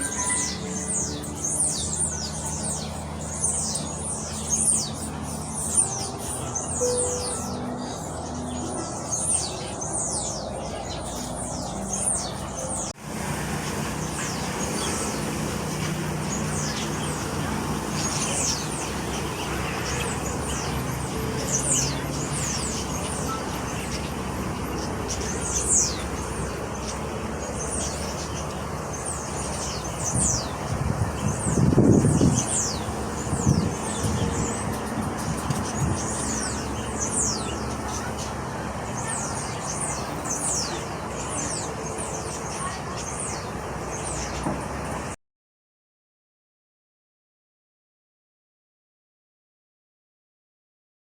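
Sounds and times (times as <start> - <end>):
small birds chirping: 0.0 - 45.2
steady background hum: 0.0 - 45.2.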